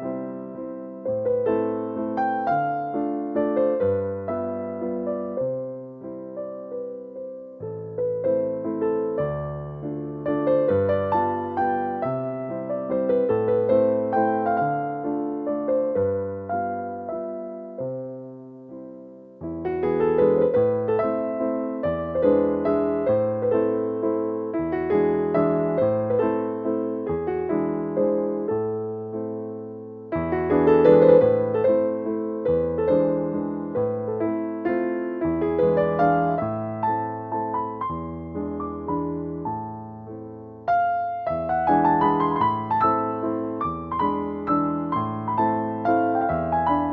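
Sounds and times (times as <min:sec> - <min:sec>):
piano waltz: 0:00.0 - 0:46.9.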